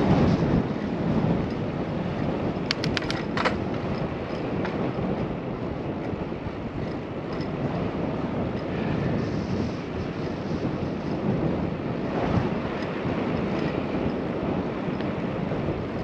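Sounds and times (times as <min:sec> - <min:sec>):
bicycle road noise: 0:00.0 - 0:16.0
wind rushing over microphone: 0:00.0 - 0:16.0
quick run of clicks: 0:02.6 - 0:04.8.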